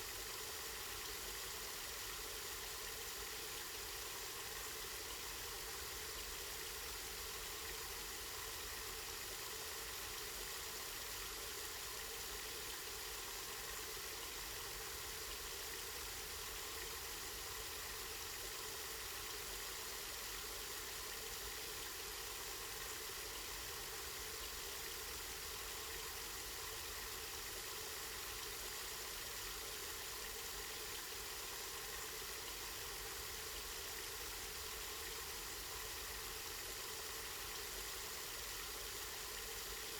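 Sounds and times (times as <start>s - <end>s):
spring water flowing and splashing: 0.0s - 39.9s.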